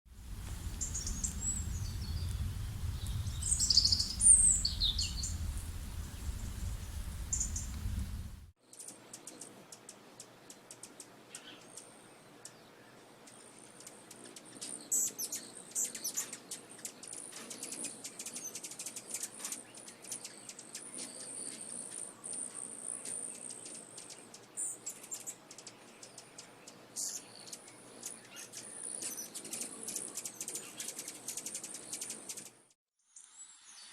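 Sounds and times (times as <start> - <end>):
low wind rumble on microphone: 0.1 - 8.5
small birds chirping: 0.2 - 33.9.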